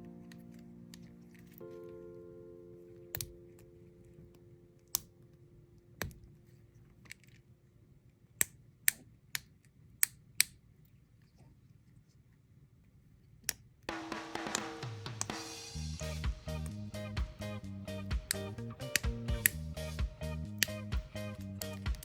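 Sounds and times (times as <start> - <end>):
music: 0.0 - 3.7, 13.9 - 22.0.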